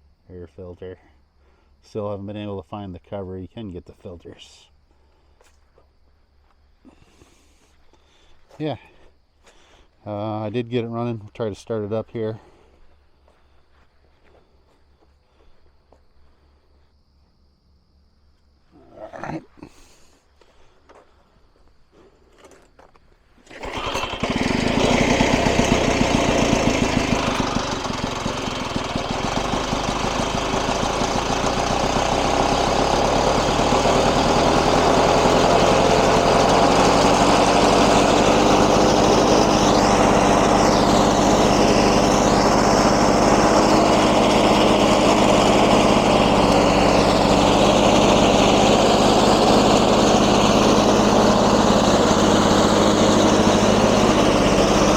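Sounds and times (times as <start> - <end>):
mower engine starting and running: 23.4 - 54.9.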